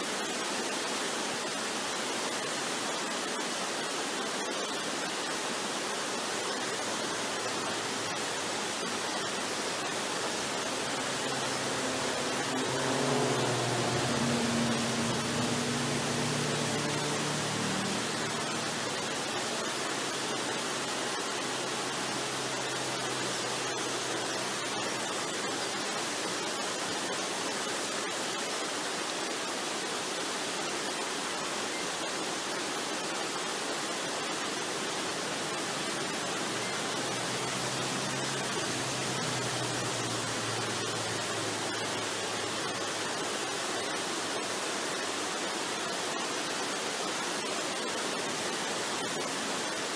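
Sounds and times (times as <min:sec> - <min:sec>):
waterfall rushing: 0:00.0 - 0:49.9
soft relaxation music: 0:08.3 - 0:23.9.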